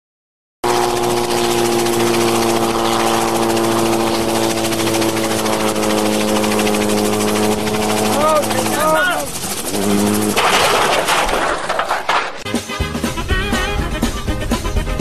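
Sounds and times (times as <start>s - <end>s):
engine droning with chatter: 0.7s - 10.4s.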